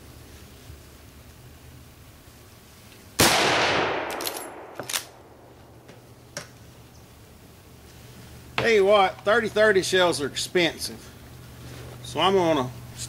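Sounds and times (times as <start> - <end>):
rifle shot: 3.2 - 5.5.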